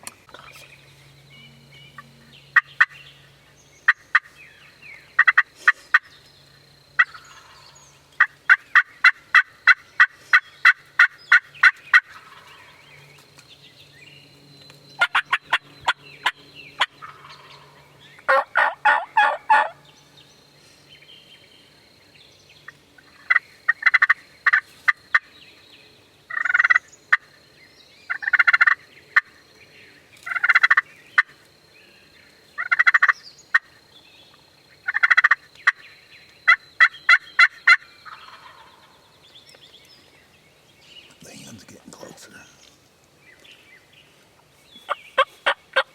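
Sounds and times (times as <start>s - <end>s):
turkey yelps: 18.3s - 19.8s, 36.5s - 38.7s.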